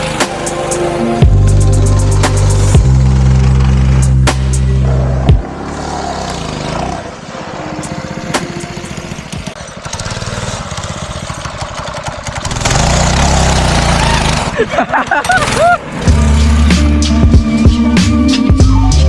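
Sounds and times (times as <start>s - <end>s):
loud music: 0.0s - 5.8s, 16.0s - 19.0s
kart engine running: 0.0s - 16.9s.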